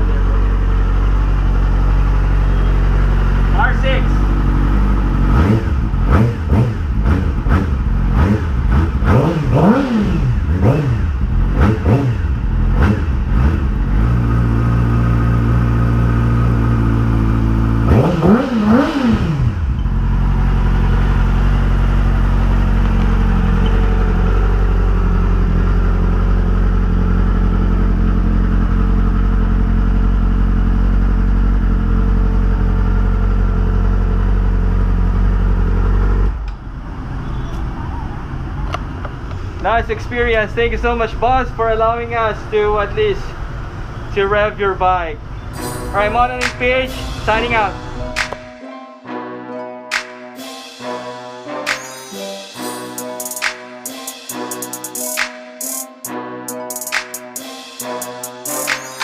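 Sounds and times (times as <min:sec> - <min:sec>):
motorcycle engine idling: 0:00.0 - 0:09.8, 0:10.4 - 0:37.5
motorcycle engine revving: 0:00.0 - 0:39.6.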